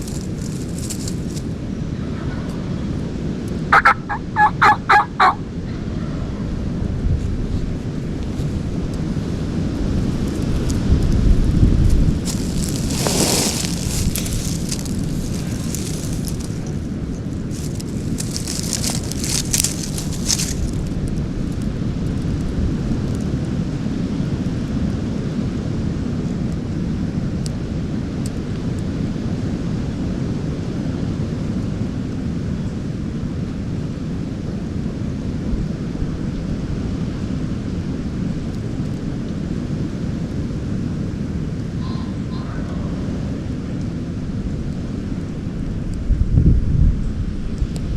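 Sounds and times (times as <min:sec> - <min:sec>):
crackling rustle: 0:00.0 - 0:01.6, 0:11.8 - 0:21.7
wind buffeting microphone: 0:45.4 - 0:47.9.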